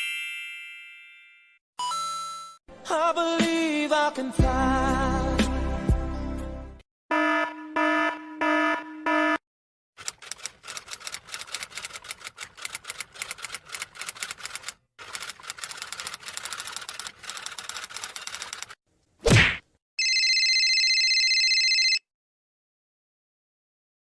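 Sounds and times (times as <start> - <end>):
rapid typing clicks: 10.0 - 18.8.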